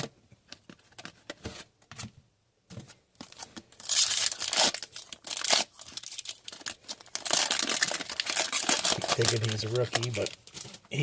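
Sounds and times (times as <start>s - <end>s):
wrapper crinkling: 3.2s - 10.9s
foil wrapper tearing: 3.7s - 10.5s.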